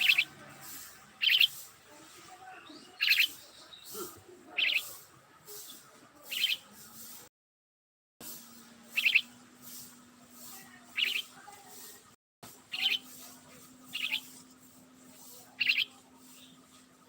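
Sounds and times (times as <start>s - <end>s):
bird chirping: 0.0s - 6.8s, 8.8s - 10.0s, 10.8s - 12.0s, 12.7s - 16.9s.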